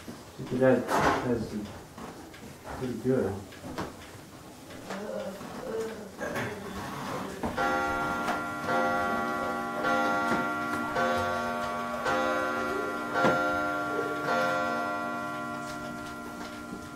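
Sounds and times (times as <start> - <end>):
chiming clock striking: 7.6 - 16.9.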